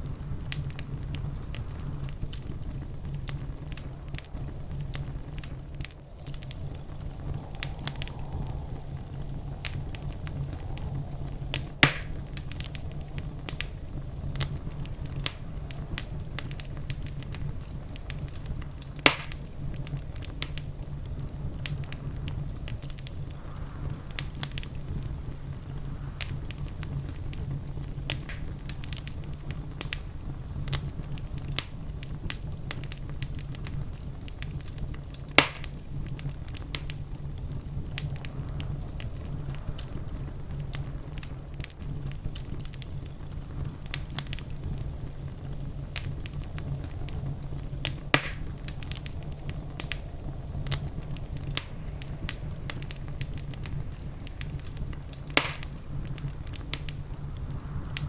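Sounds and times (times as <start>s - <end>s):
fire flames rumbling: 0.0s - 58.0s
loud sharp pops from fire: 0.0s - 58.0s
wood fire crackling: 0.0s - 58.0s.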